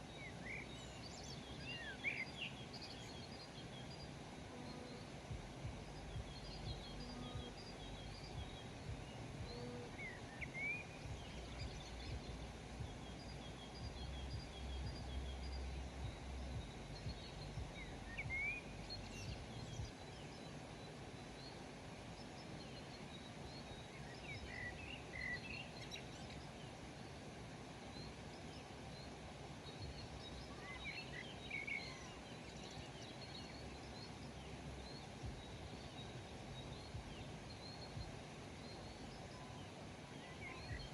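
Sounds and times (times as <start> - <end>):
small birds twittering: 0.0 - 40.9
low background rumble: 3.0 - 25.4, 31.4 - 40.9.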